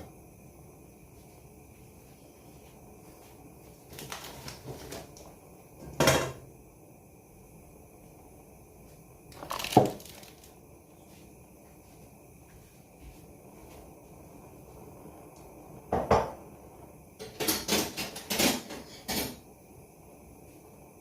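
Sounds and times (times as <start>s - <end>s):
pots and utensils clattering: 17.2s - 19.4s.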